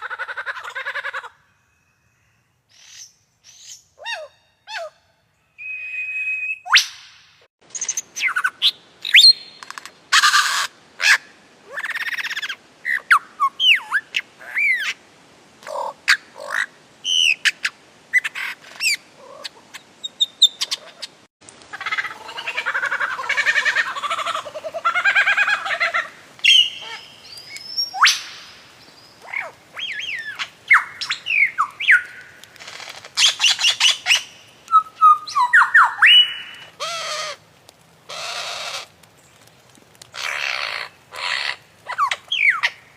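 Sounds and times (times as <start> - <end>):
birds calling: 15.7 - 37.4.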